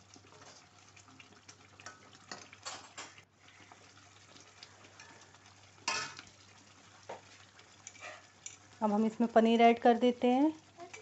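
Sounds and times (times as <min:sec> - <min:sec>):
gravy simmering: 0:00.0 - 0:11.0
spoon tapping and scraping a pan: 0:01.8 - 0:03.2, 0:04.9 - 0:06.3, 0:07.0 - 0:08.7.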